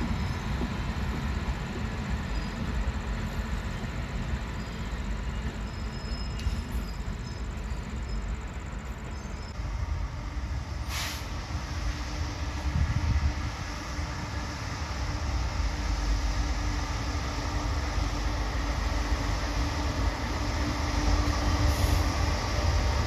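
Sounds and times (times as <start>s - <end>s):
train rumbling on tracks: 0.0s - 23.0s
short hiss: 10.8s - 11.4s.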